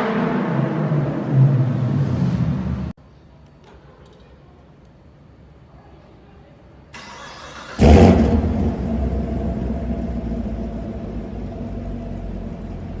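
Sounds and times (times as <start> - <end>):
car engine starting and idling: 6.9 - 13.0.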